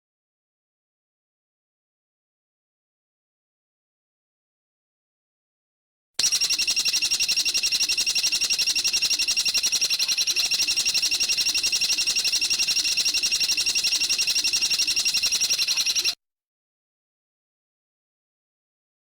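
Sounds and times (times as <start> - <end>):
high rapid bird trill: 6.2 - 16.2.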